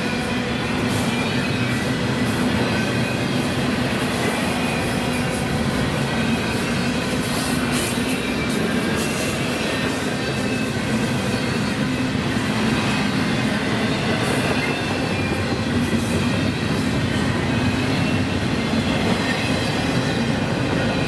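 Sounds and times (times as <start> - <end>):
train rumbling on rails: 0.0 - 21.0.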